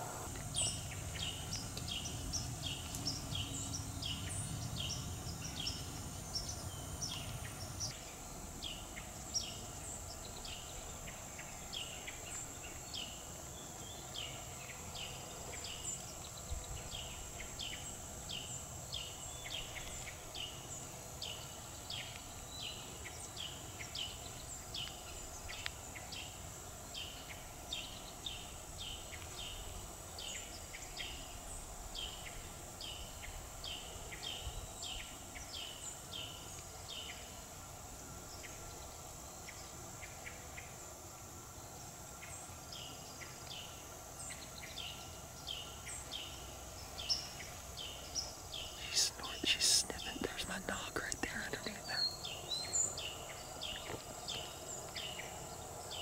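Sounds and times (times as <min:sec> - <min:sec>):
bird chirping: 0:00.0 - 0:26.4, 0:42.2 - 0:56.0
faint high whine: 0:00.0 - 0:56.0.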